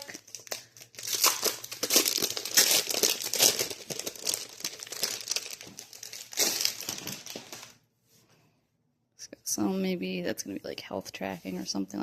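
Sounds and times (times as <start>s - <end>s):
packaging wrap crinkling: 0.0s - 7.8s.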